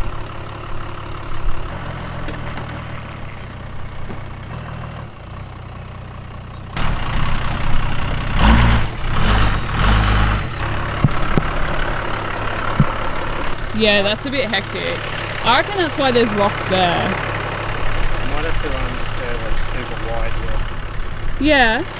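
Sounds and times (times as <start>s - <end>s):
engine running at low revs: 0.0s - 21.9s
heavy low rumbles: 6.6s - 21.9s.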